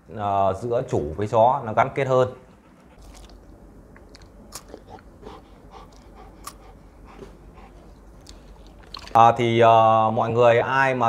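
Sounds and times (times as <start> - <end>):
person chewing crunchy snack: 3.0 - 6.8, 8.2 - 9.2.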